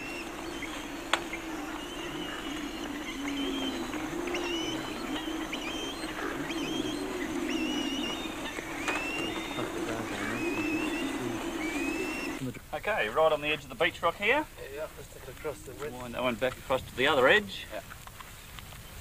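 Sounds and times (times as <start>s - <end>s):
droning bird calls: 0.0s - 12.5s.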